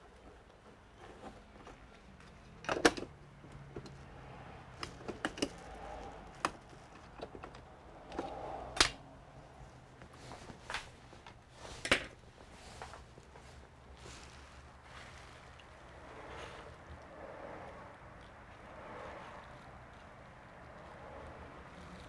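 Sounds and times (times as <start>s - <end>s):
sharp clicks and knocks: 4.7s - 9.0s.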